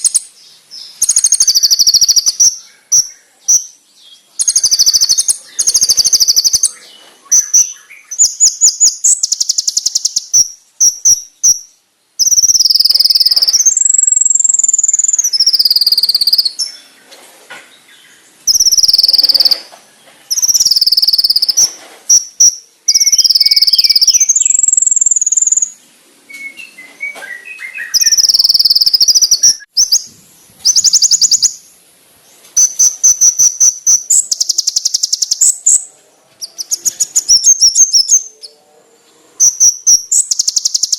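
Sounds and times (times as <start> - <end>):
songbird high-pitched trills: 0.0 - 17.0, 18.5 - 31.7, 32.6 - 38.6, 39.4 - 40.9.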